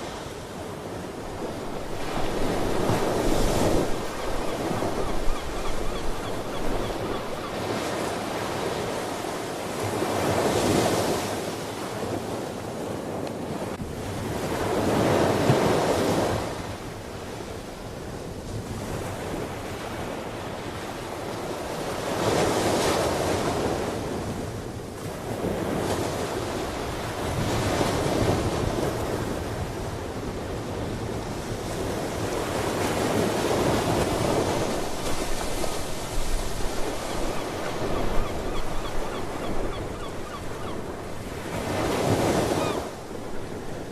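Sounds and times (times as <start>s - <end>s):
ocean waves breaking: 0.0s - 12.1s, 25.1s - 43.9s
wind on microphone: 0.6s - 7.9s.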